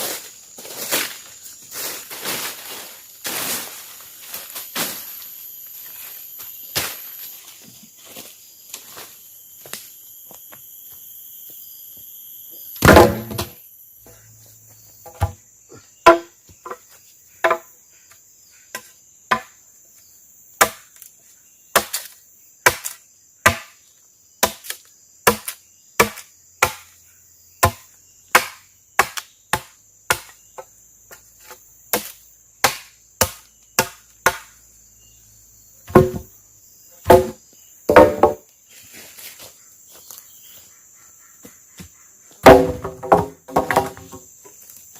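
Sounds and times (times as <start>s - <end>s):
forest insects buzzing: 0.0s - 44.9s
blade chopping wood: 12.8s - 13.6s, 20.6s - 20.9s, 21.8s - 23.7s, 24.4s - 26.8s, 27.6s - 30.3s, 31.9s - 34.5s, 35.9s - 36.3s, 37.0s - 38.4s, 42.4s - 44.2s.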